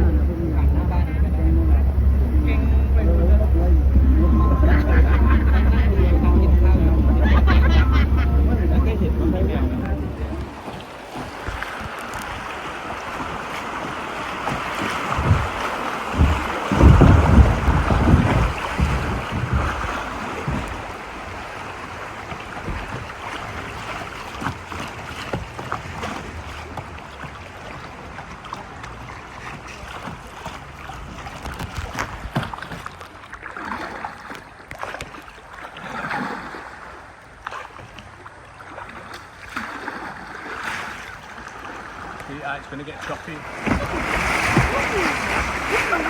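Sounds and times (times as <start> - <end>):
wind buffeting microphone: 0.0 - 27.0
river water rushing: 0.0 - 32.0, 38.5 - 46.0
paddle splashes and knocks: 0.0 - 46.0.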